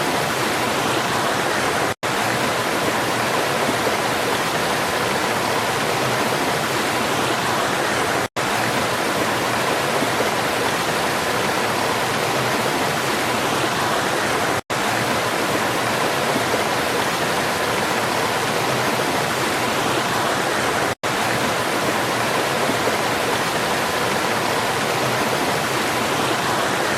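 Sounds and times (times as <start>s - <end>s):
waterfall roaring: 0.0s - 26.9s.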